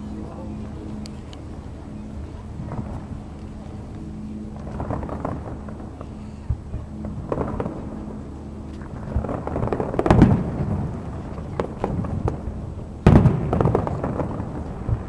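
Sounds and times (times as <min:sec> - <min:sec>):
fireworks booming: 0:02.6 - 0:03.2, 0:04.6 - 0:08.2, 0:08.8 - 0:15.0
fireworks crackling: 0:04.6 - 0:08.2, 0:08.8 - 0:15.0.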